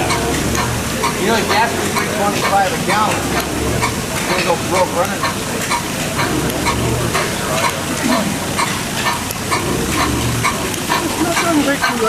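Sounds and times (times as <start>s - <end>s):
hit-and-miss engine running: 0.0s - 12.0s.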